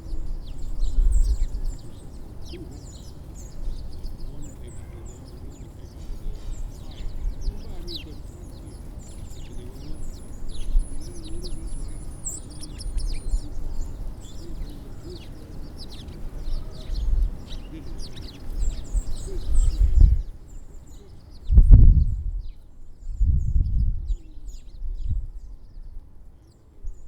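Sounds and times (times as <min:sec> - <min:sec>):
small birds chirping: 0:00.0 - 0:27.0
low rumbling background: 0:16.8 - 0:20.4, 0:21.4 - 0:25.8.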